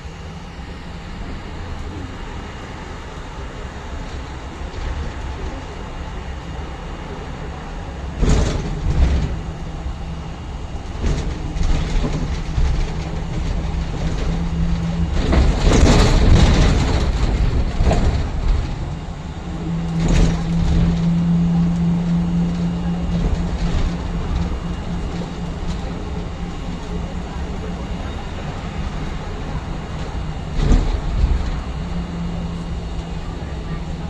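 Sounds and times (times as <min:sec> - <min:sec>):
bus drivetrain hum: 0:00.0 - 0:34.0
road rumble: 0:00.0 - 0:34.0
rattles: 0:06.9 - 0:34.0.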